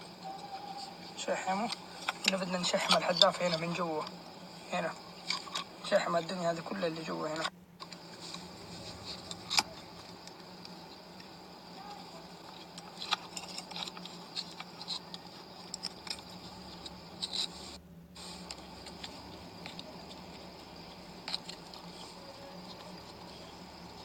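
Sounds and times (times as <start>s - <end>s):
steady low hum: 0.0s - 24.0s
hands clicking and scraping on metal parts: 12.5s - 17.7s, 18.3s - 24.0s.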